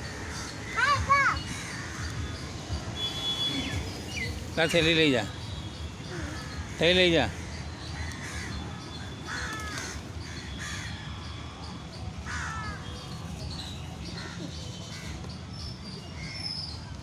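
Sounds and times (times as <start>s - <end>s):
crows cawing: 0.2s - 2.3s, 6.1s - 11.1s, 12.3s - 12.8s.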